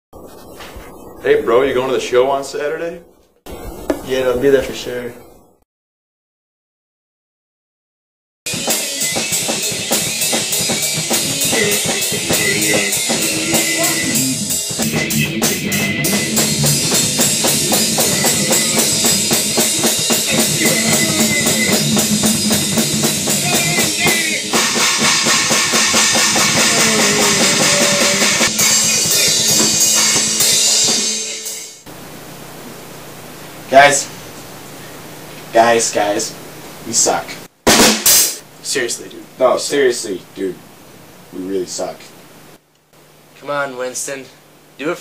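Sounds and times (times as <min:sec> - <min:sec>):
rock music with drums and guitar: 0:08.5 - 0:31.9, 0:37.6 - 0:38.4.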